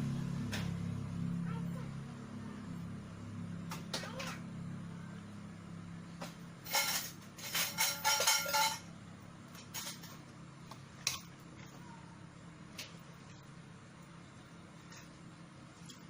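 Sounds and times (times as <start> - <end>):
metal objects clinking: 6.6 - 8.9, 9.6 - 10.2.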